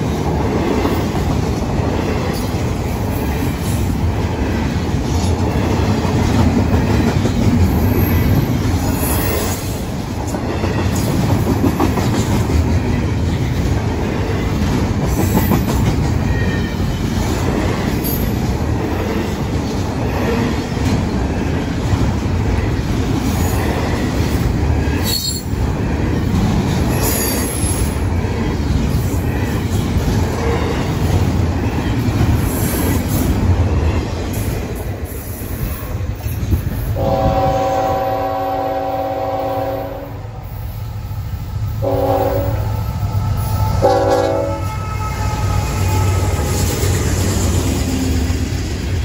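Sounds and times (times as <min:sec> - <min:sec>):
freight train rumbling: 0:00.0 - 0:49.0
locomotive air horn blasts: 0:37.0 - 0:40.3, 0:41.8 - 0:42.8, 0:43.4 - 0:46.5.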